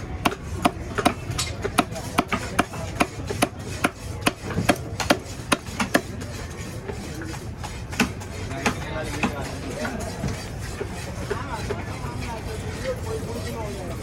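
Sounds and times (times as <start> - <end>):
knife chopping: 0.1 - 6.2, 7.0 - 9.4.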